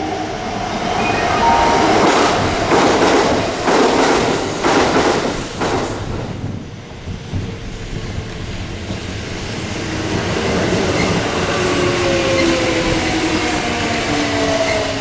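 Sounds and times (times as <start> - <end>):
electric train passing: 0.0 - 7.3
train wheels clattering: 2.7 - 6.6.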